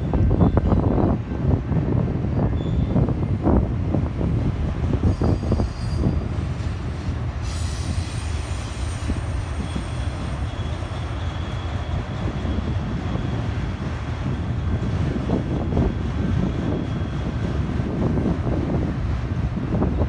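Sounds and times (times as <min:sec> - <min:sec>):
train wheels rumbling on rails: 0:00.0 - 0:20.0
high wheel squeal: 0:02.5 - 0:03.0, 0:05.0 - 0:13.6, 0:15.8 - 0:17.4.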